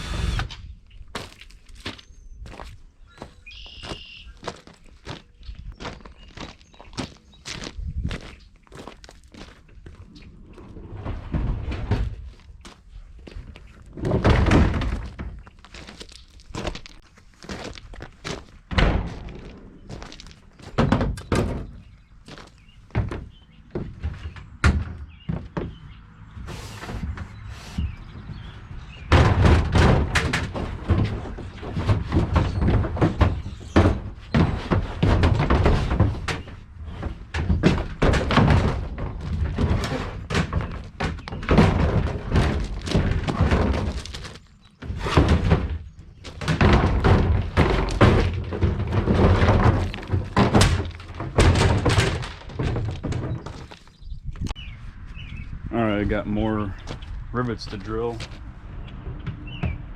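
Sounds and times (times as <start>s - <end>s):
plastic parts thunking and knocking: 9.7s - 54.7s, 59.0s - 59.9s.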